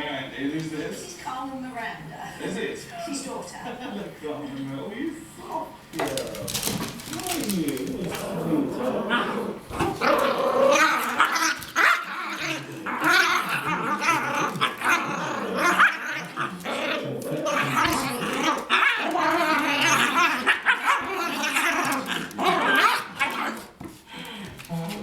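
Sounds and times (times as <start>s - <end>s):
dogs growling: 5.4s - 25.0s
dogs barking: 8.1s - 23.8s
dogs yipping: 9.8s - 16.8s, 17.4s - 23.8s.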